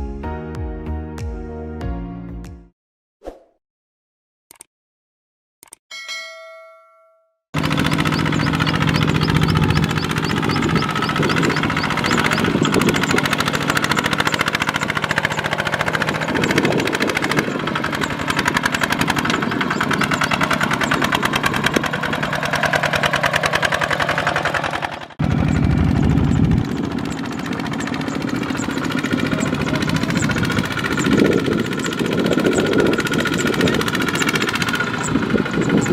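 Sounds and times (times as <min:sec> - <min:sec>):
diesel engine knocking: 0:07.6 - 0:35.9.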